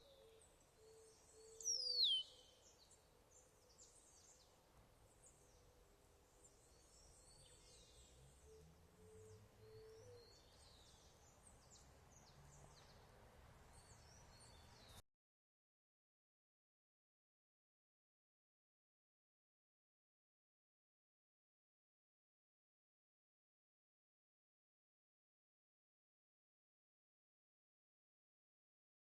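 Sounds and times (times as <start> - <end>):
birds chirping faintly: 0.0 - 15.0.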